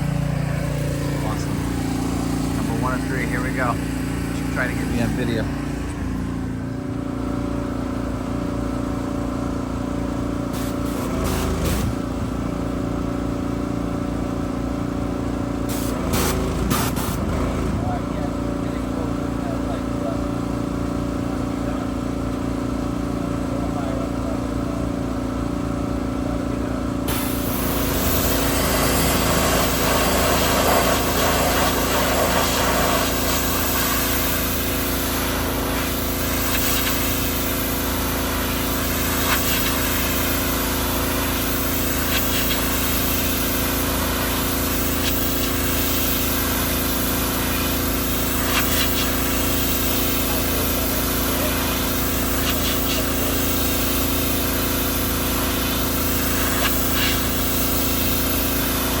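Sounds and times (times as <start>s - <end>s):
pressure washer engine running: 0.0s - 59.0s
water spray hissing on fabric: 10.6s - 11.9s, 15.7s - 17.2s, 27.1s - 59.0s.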